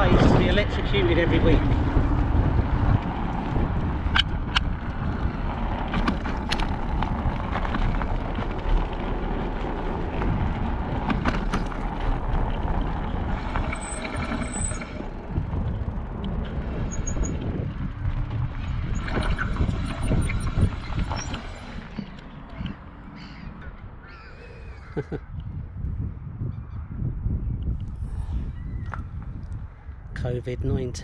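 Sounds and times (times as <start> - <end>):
tyre rumble on road: 0.0 - 23.4
wind buffeting on microphone: 0.0 - 31.0
high-pitched squeal: 13.4 - 15.2, 18.8 - 24.2.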